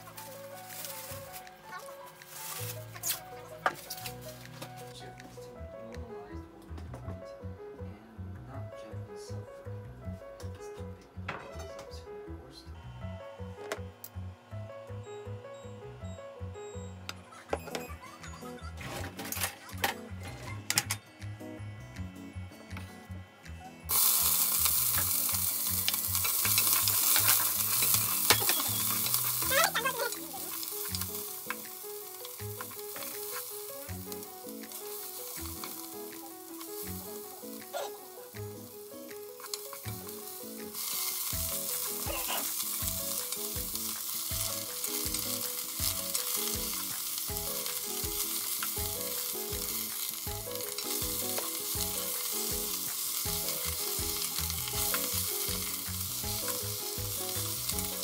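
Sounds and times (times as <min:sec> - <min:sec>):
vegetables sizzling in hot oil: 0:00.0 - 0:04.5, 0:23.8 - 0:58.0.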